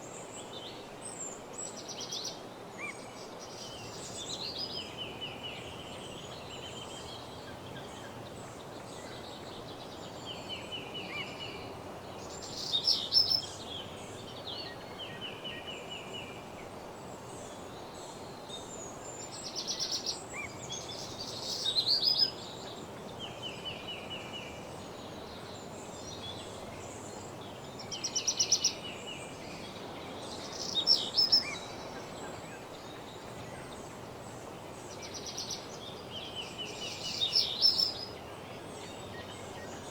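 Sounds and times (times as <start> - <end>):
songbirds singing: 0.0 - 39.9
steady low hiss: 0.0 - 39.9.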